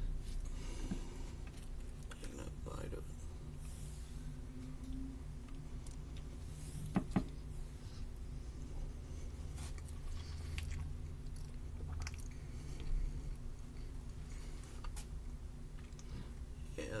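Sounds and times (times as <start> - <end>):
low steady kitchen hum: 0.0 - 17.0
person chewing food: 4.6 - 16.6.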